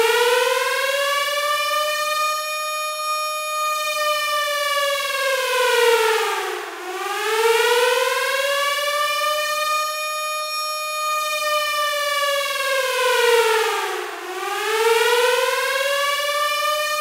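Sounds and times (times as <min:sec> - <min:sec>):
police siren wailing: 0:00.0 - 0:17.0.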